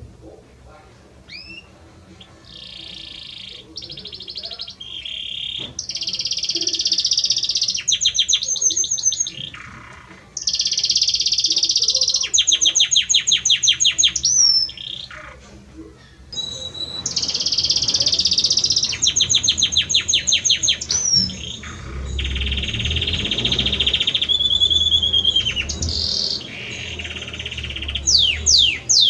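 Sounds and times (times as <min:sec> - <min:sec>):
canary singing trills: 0:01.2 - 0:29.0.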